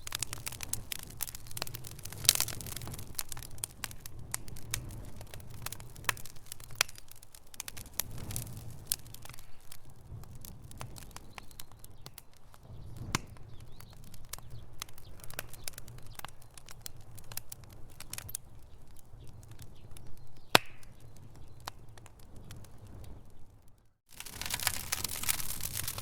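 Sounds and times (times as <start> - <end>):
low rumble of flames: 0.0 - 26.0
wood fire crackling and popping: 0.0 - 26.0.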